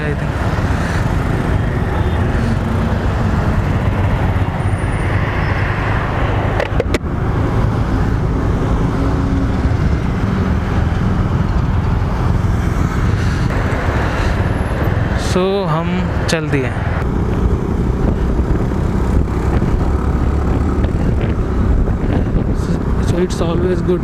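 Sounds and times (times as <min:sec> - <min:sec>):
motorcycles running: 0:00.0 - 0:24.0.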